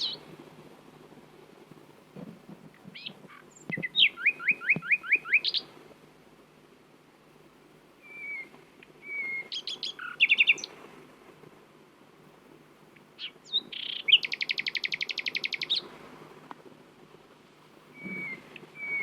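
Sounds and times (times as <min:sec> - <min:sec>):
nightingale singing: 0:00.0 - 0:00.3, 0:02.8 - 0:05.7, 0:08.0 - 0:10.8, 0:12.9 - 0:15.9, 0:17.9 - 0:19.0.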